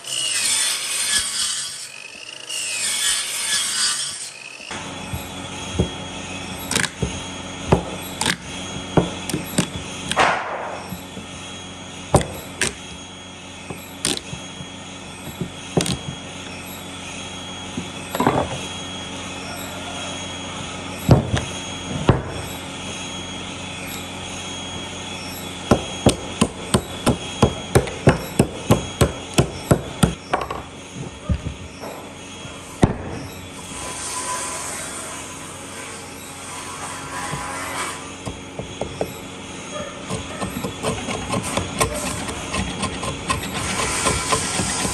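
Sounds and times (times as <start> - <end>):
steady hum: 4.5 - 44.9
hammering on wood: 6.7 - 11.0, 25.7 - 32.1.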